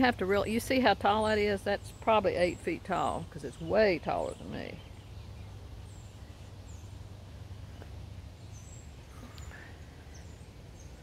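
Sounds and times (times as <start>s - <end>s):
faint bird chirps: 3.5s - 11.0s.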